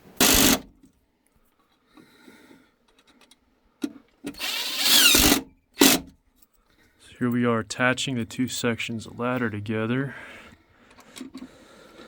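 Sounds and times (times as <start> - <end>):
ladder scraping rasp: 0.0 - 0.6.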